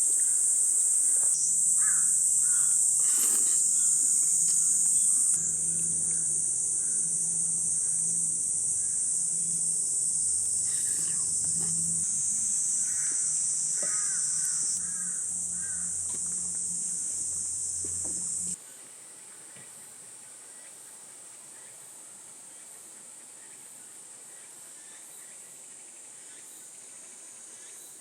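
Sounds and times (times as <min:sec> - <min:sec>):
insects droning: 0:00.0 - 0:28.0
bird calling: 0:01.1 - 0:07.1, 0:10.6 - 0:16.2.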